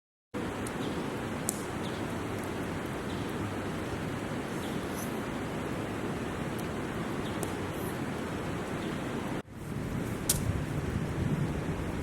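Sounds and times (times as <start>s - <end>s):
river flowing: 0.4s - 12.0s.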